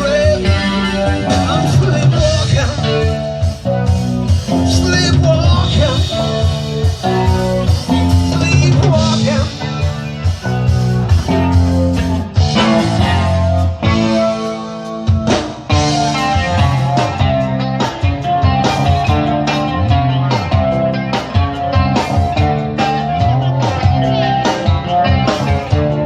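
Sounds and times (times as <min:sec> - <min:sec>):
electric guitar: 0:00.0 - 0:26.0
live rock band playing: 0:00.0 - 0:26.0.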